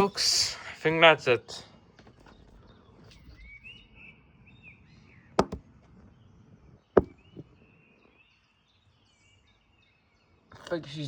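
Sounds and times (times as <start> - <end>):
faint bird chirps: 1.6 - 11.0.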